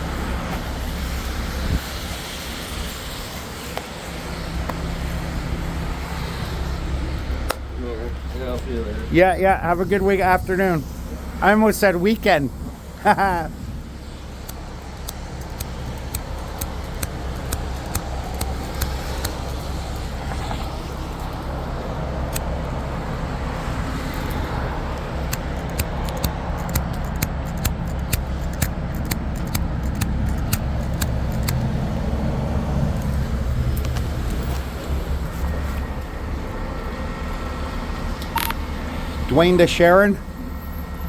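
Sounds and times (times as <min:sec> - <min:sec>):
road traffic rumble: 0:00.0 - 0:41.0
sharp ticks: 0:13.0 - 0:21.5, 0:23.8 - 0:32.1, 0:38.2 - 0:38.6.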